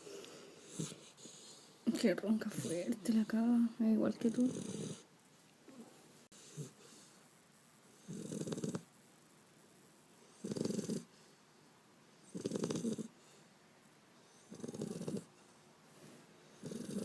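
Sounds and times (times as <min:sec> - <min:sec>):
puppy snoring: 0:00.0 - 0:03.6, 0:04.2 - 0:05.1, 0:06.3 - 0:07.2, 0:08.0 - 0:09.0, 0:10.3 - 0:11.3, 0:12.2 - 0:13.4, 0:14.3 - 0:15.4, 0:16.4 - 0:17.0.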